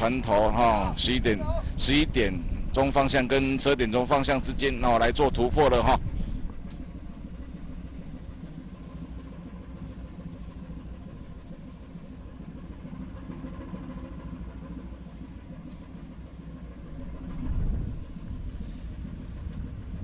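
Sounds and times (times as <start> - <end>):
ship engine droning: 0.0 - 20.0.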